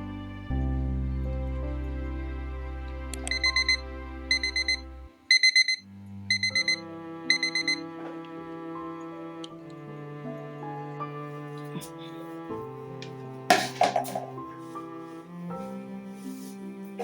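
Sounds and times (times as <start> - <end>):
soft background music: 0.0 - 17.0
electronic alarm beeping: 3.2 - 7.9.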